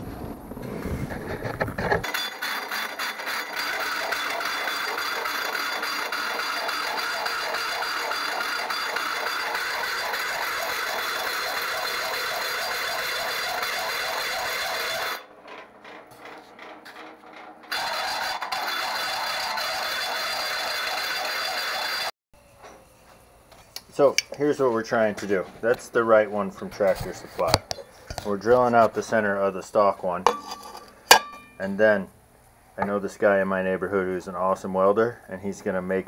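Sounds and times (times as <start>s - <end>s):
electric drill boring through metal: 2.0s - 15.3s, 16.1s - 22.1s.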